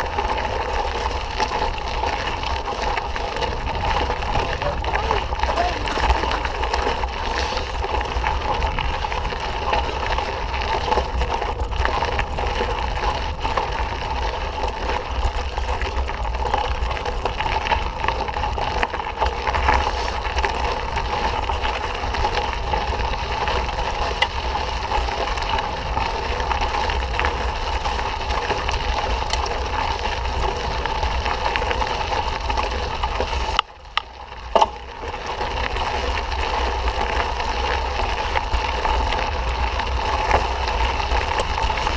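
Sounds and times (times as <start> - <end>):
mountain bike rattling on dirt: 0.0 - 41.9.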